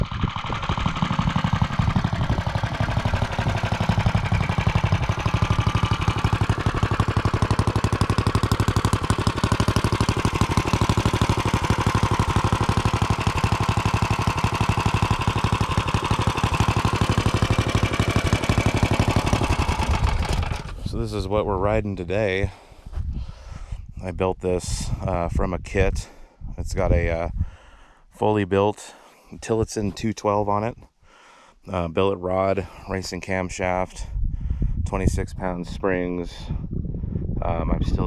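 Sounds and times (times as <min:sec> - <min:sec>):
minibike engine running: 0:00.0 - 0:20.9.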